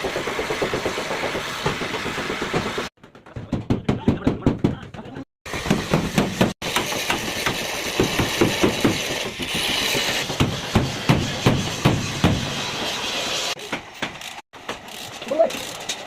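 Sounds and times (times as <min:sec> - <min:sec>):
hammer on sheet metal: 0:10.2 - 0:12.5.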